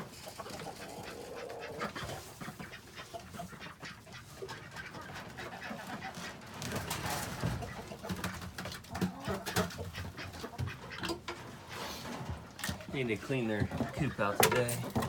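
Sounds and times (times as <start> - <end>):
hens clucking: 0.0 - 15.0
clicks and rustles: 4.4 - 15.0.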